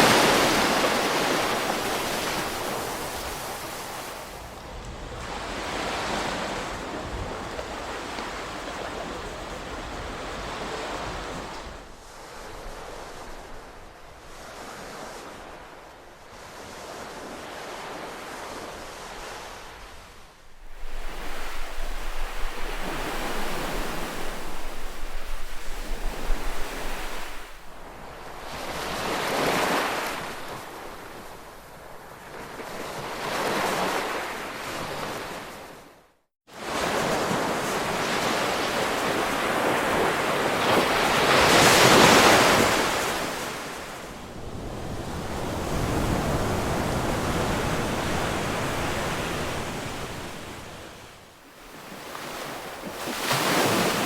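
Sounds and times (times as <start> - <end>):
ocean waves washing ashore: 0.0 - 54.0.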